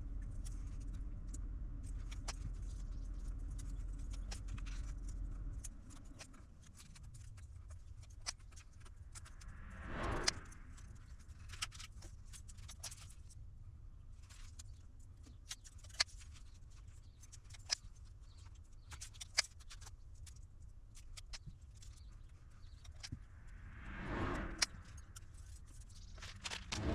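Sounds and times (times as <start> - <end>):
low hum: 9.1 - 11.2, 22.9 - 26.9.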